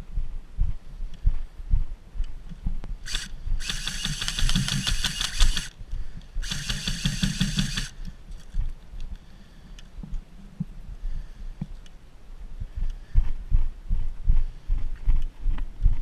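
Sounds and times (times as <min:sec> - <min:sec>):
electric toy gun firing full auto: 0:03.1 - 0:05.7, 0:06.4 - 0:08.0.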